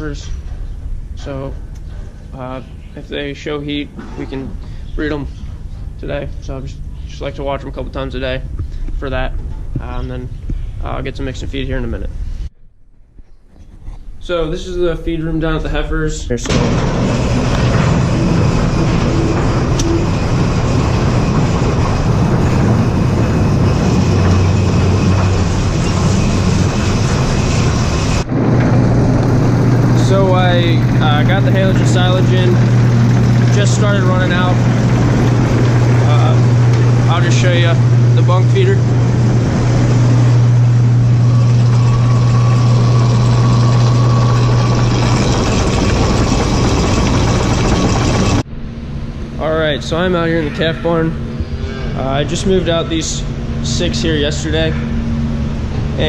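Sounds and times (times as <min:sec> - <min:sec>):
strong low hum: 0:00.0 - 0:56.0
farm machinery engine running: 0:16.4 - 0:48.5.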